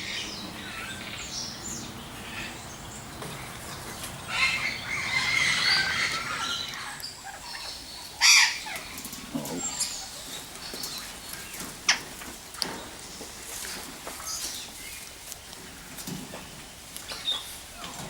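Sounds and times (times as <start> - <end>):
birds chattering: 0.0 - 18.0
bird squawk: 4.3 - 9.0.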